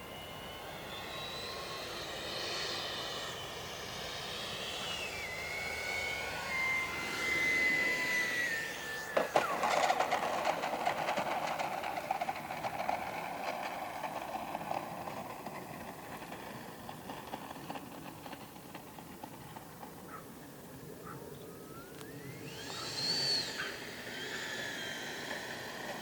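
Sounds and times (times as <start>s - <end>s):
electric ducted fan whining: 0.0s - 26.0s.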